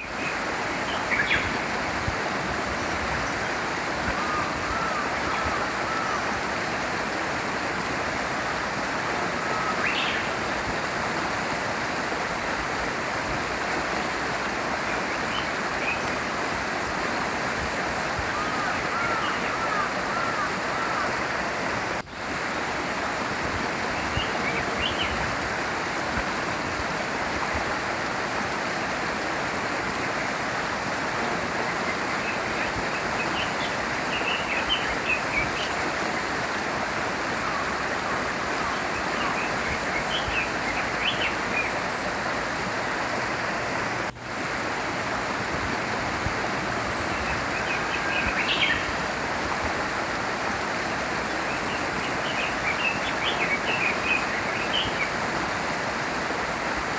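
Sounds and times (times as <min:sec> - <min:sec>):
small stream flowing: 0:00.0 - 0:56.9.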